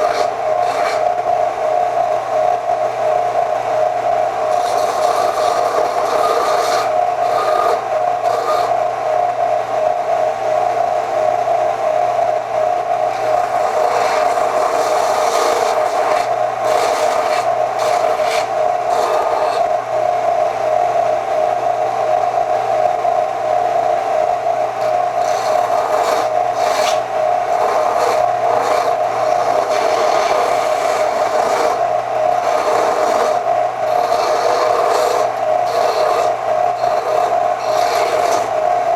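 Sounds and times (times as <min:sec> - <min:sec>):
grinding scraping on metal: 0:00.0 - 0:01.3, 0:04.4 - 0:09.0, 0:13.1 - 0:20.0, 0:24.7 - 0:38.9
power tool grinding steel: 0:00.0 - 0:01.3, 0:04.4 - 0:08.8, 0:13.1 - 0:19.8, 0:24.7 - 0:38.9.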